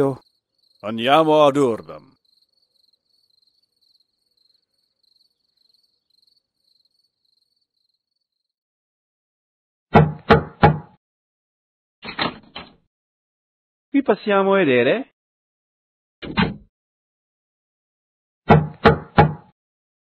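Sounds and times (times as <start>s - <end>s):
crickets chirping: 0.0s - 8.6s
knocks on a door: 9.9s - 11.0s, 18.5s - 19.5s.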